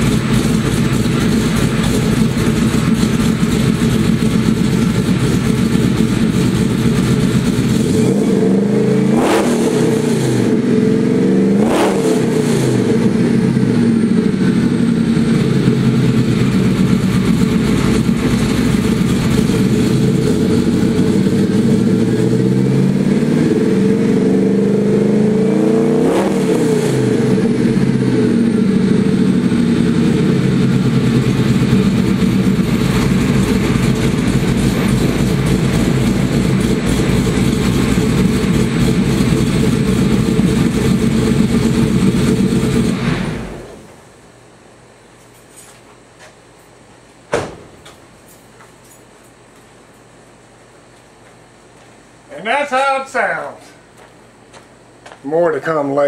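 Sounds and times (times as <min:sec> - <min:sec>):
truck engine running: 0:00.0 - 0:44.1.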